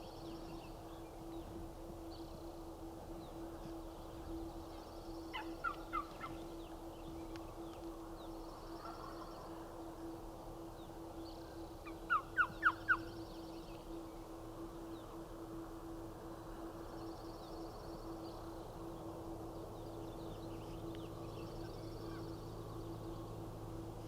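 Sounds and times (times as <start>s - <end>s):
distant turkey gobbling: 5.3s - 6.4s, 12.1s - 13.0s.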